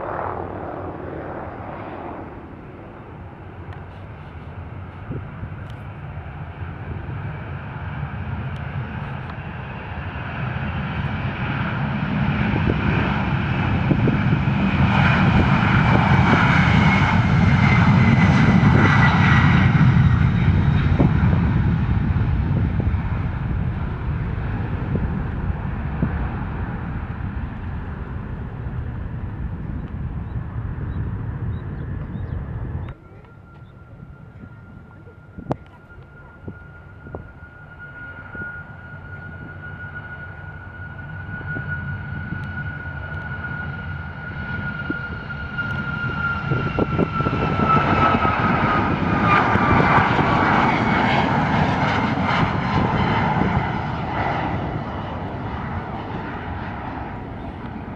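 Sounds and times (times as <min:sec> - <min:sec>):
aircraft engines passing: 0:00.0 - 0:57.9.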